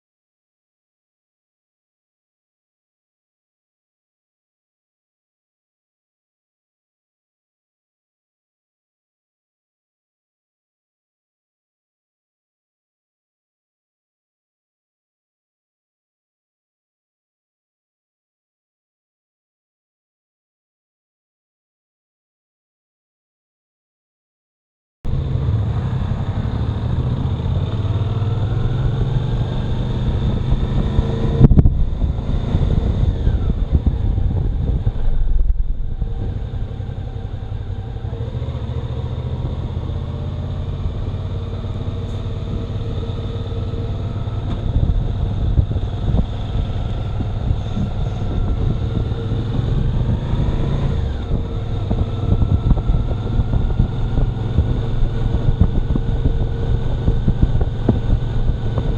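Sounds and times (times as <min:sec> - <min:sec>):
motorcycle engine accelerating: 0:25.1 - 0:58.9.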